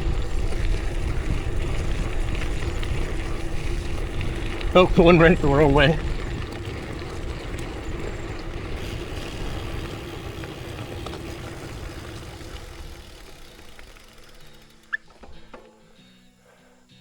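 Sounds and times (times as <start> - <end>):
wind rush on microphone: 0.0 - 13.1
bicycle tyre rumble: 0.0 - 15.9.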